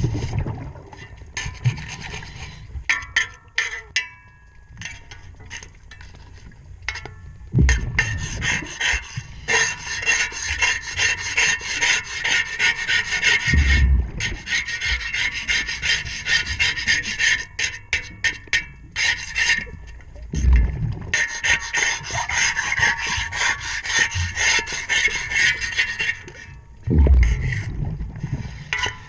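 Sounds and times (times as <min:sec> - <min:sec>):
low underwater rumbles: 0:00.0 - 0:03.1, 0:04.6 - 0:09.9, 0:13.2 - 0:16.8, 0:19.6 - 0:21.5, 0:26.6 - 0:29.0
propeller scrubbed underwater: 0:00.0 - 0:03.7, 0:04.8 - 0:29.0.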